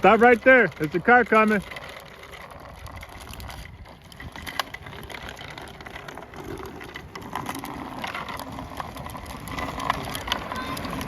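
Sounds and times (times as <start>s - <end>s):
bicycle tyre noise: 0.0s - 11.0s
bike clicks and rattles: 0.0s - 11.0s
wind rumbling on microphone: 2.5s - 11.0s.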